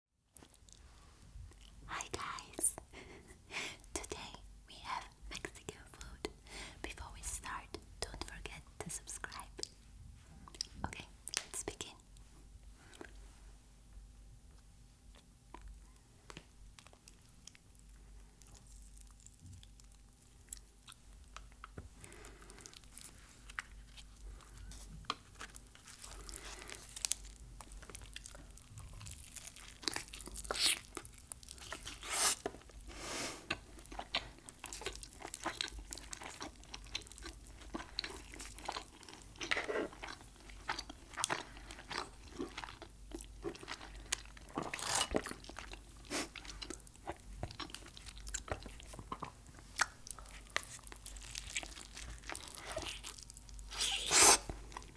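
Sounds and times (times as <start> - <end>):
crunchy food chewing: 15.1 - 54.9.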